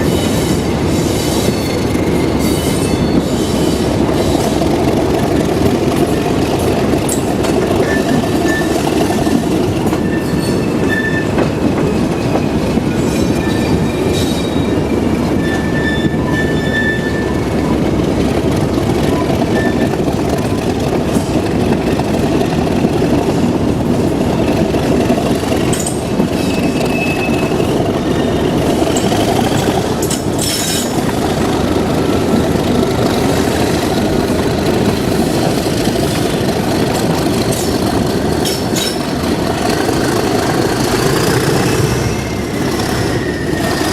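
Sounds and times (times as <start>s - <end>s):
high wheel squeal: 0.0s - 18.1s, 18.8s - 22.1s, 24.4s - 43.9s
diesel train rumbling on rails: 0.0s - 43.9s
sharp clicks from track: 28.9s - 41.8s.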